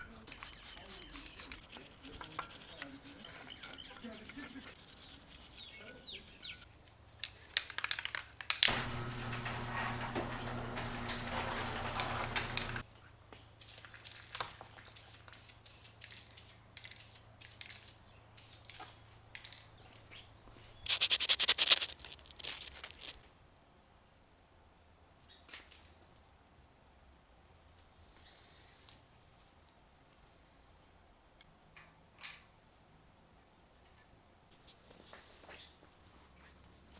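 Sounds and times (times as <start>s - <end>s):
rapid scraping rattle: 20.9s - 23.1s.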